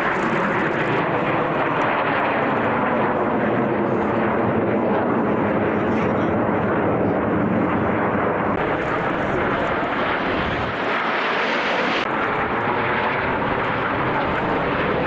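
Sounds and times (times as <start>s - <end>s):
aircraft engine rushing: 0.0s - 15.0s.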